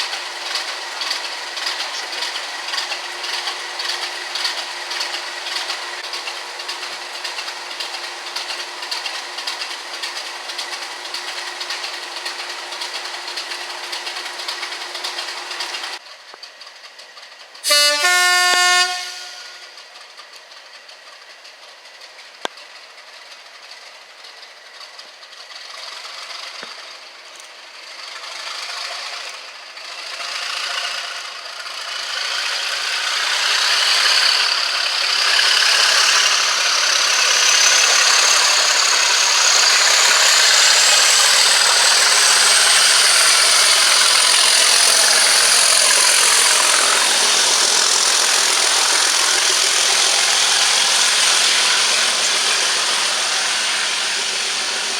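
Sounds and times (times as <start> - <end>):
train passing: 17.6 - 20.0, 29.8 - 54.9
high whine rising in pitch: 35.2 - 54.9.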